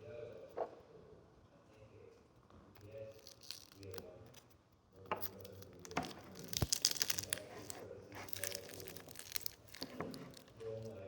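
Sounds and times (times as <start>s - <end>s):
packaging crinkling and tearing: 3.2s - 4.0s, 5.4s - 11.0s.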